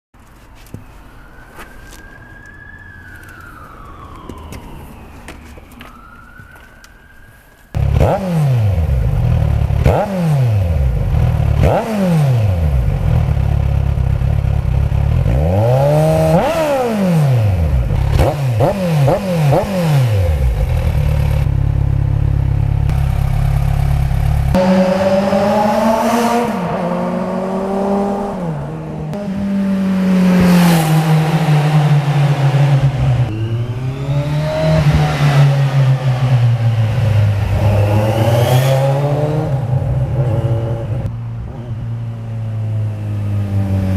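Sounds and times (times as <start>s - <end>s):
motorcycle engine revving: 7.8s - 43.9s.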